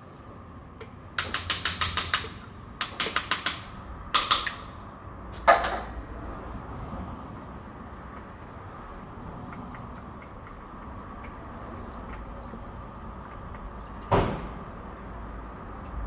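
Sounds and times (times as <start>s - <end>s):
ratchet wrench clicking: 1.2s - 4.8s.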